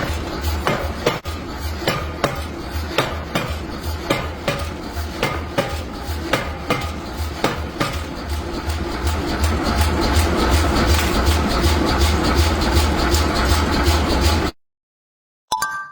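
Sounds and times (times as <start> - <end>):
hammer striking steel: 0.0 - 11.7.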